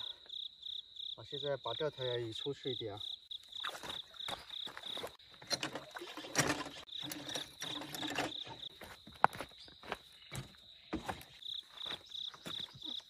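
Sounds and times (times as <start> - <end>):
insects chirping: 0.0 - 13.0
fishing gear knocking and clattering: 5.4 - 8.8.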